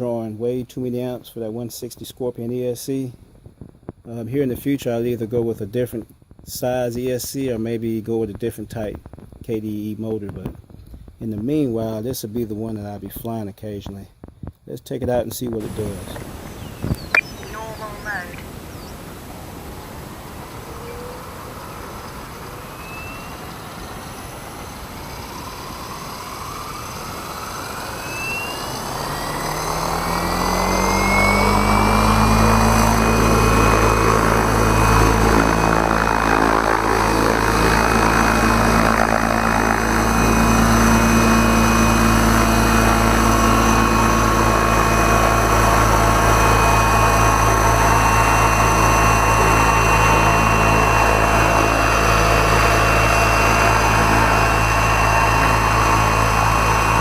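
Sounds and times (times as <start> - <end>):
electric motor whine: 15.6 - 57.0
rotor blade noise: 15.6 - 57.0.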